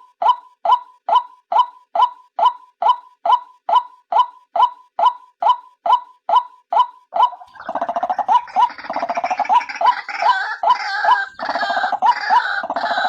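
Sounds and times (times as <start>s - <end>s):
bird gurgling chatter: 7.2s - 13.0s.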